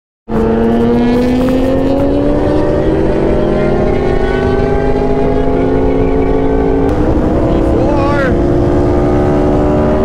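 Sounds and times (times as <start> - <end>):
high-revving engine accelerating: 0.3 - 10.0.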